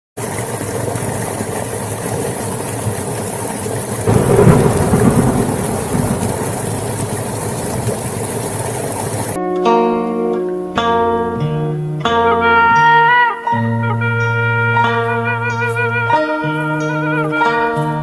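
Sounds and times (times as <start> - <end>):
steady rain hissing: 0.2 - 9.4
low rumble of thunder: 2.3 - 9.4.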